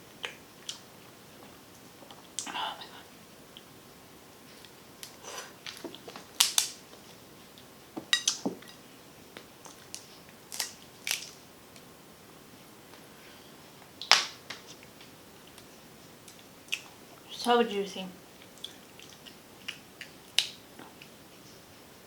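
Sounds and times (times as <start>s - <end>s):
crab shell cracking: 5.0s - 6.8s, 9.6s - 11.4s.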